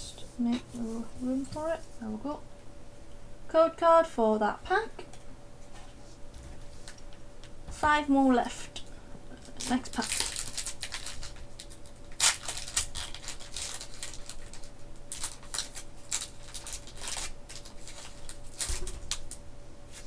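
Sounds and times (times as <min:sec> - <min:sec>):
foil wrapper crinkling and tearing: 0:09.5 - 0:20.0.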